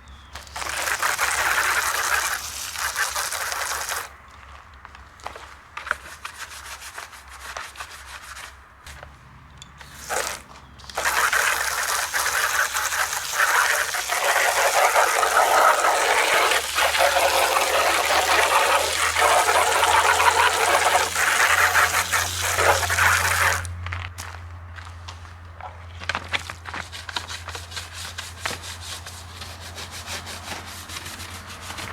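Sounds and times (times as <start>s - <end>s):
rushing rubbing noise: 0.5s - 4.1s, 9.8s - 23.7s
short noise bursts: 9.8s - 23.7s.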